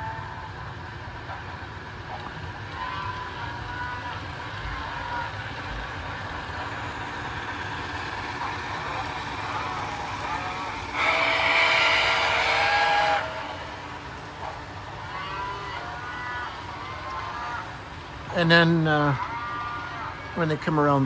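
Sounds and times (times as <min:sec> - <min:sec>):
model trains rolling on track: 0:00.0 - 0:21.0
locomotive whistle blast: 0:09.8 - 0:17.6.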